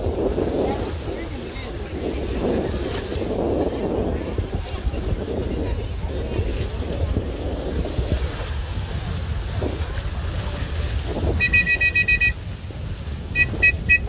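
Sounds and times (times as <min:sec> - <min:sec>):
wind buffeting microphone: 0:00.0 - 0:14.0
high electronic beeps: 0:11.4 - 0:12.4, 0:13.4 - 0:14.0.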